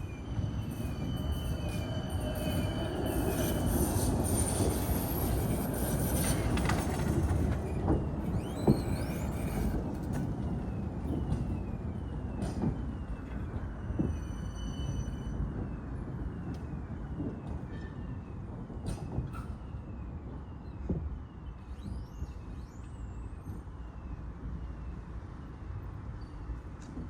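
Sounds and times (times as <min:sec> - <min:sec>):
rising wheel squeal: 0:00.0 - 0:16.5
tram wheels rumbling on rail: 0:00.0 - 0:27.0.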